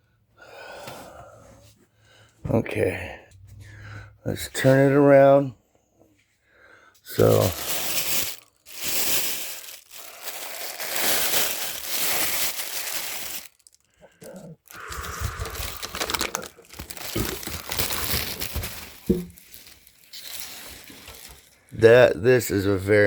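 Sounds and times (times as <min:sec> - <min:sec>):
packing material crinkling: 0:07.1 - 0:21.9.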